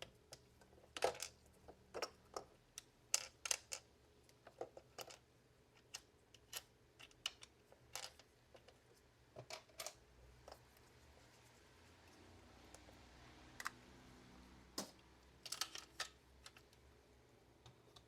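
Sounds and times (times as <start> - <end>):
plastic parts clicking and tapping: 0.0 - 10.6, 14.8 - 16.8.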